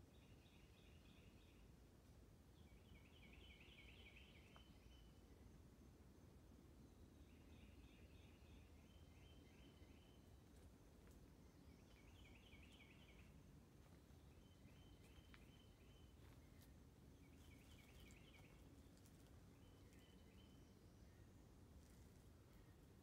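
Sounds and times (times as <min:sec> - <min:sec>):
faint outdoor ambience: 0:00.0 - 0:23.0
small bird chirping: 0:14.2 - 0:22.9.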